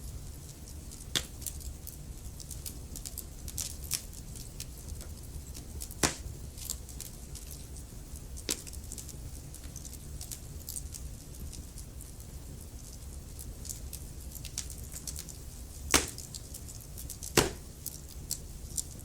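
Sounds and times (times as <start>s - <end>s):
low rumble of flames: 0.0s - 19.0s
wood fire crackling: 0.0s - 19.0s
small snaps and ticks: 0.4s - 19.0s
loud fire pops: 5.8s - 6.4s, 15.9s - 16.4s, 17.2s - 17.8s.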